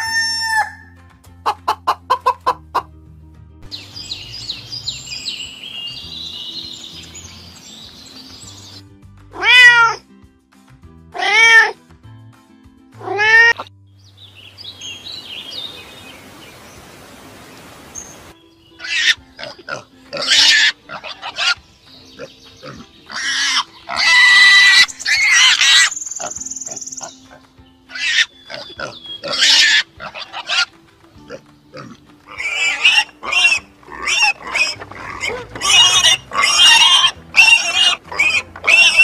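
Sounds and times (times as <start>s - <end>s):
soft background music: 0.0s - 39.0s
cat meowing: 9.4s - 10.0s, 11.2s - 11.8s
piglets squealing and grunting: 18.8s - 21.6s, 22.2s - 27.2s, 27.9s - 30.7s, 31.3s - 39.0s.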